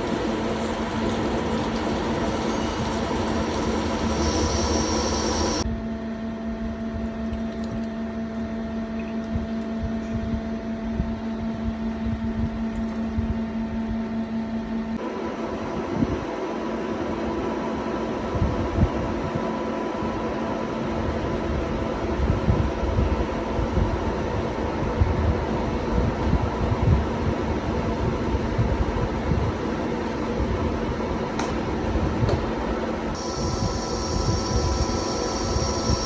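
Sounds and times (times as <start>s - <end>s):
lathe machine hum: 0.0s - 5.6s, 33.0s - 36.0s
steady machine tone: 0.0s - 5.6s, 33.2s - 36.0s.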